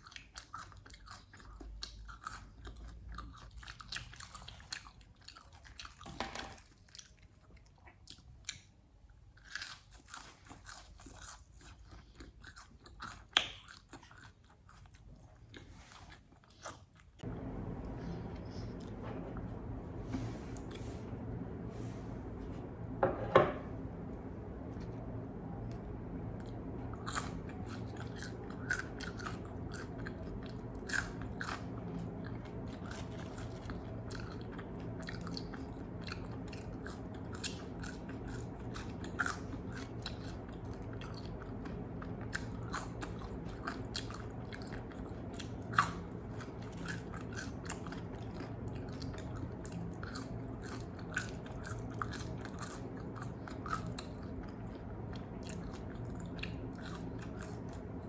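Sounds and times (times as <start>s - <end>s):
low hum: 17.2s - 58.0s
crunching fried chicken: 26.5s - 58.0s.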